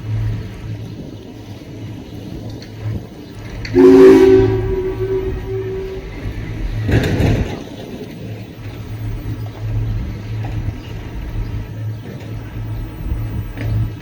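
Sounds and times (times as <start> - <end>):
boat engine rumbling: 0.0 - 14.0
rush of noise: 3.6 - 7.0.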